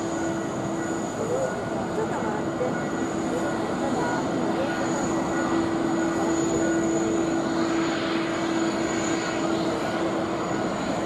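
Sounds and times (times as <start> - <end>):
jet engine whine: 0.0 - 11.0
jet engines running: 0.0 - 11.0.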